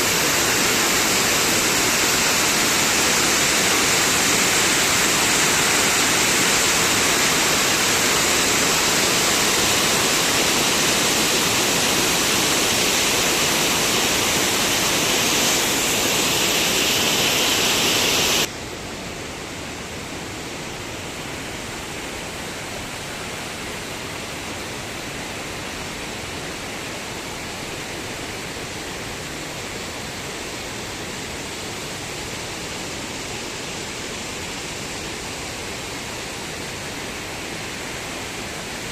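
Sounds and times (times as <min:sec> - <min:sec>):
falling water rushing: 0:00.0 - 0:18.5.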